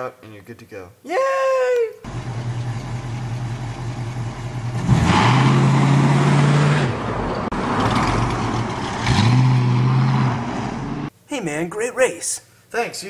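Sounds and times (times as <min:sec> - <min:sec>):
car engine accelerating: 0:02.1 - 0:11.1.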